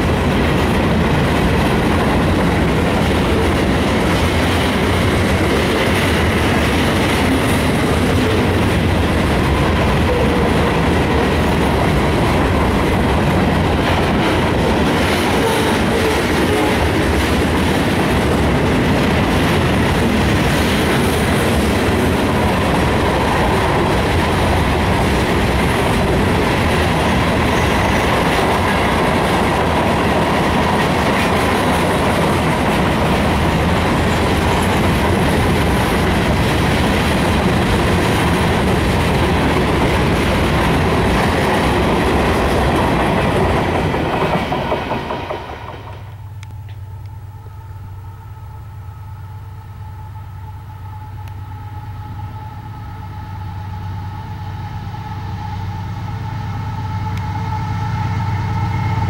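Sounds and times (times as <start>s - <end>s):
wheels clacking over rail joints: 0.0s - 46.2s
freight train rumble: 0.0s - 59.0s
thin steady whine: 46.0s - 59.0s.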